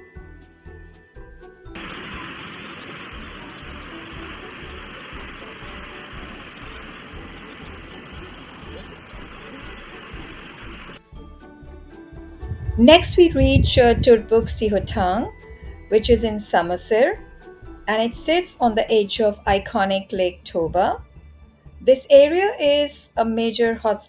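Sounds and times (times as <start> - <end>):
rushing hissing noise: 1.8 - 11.0.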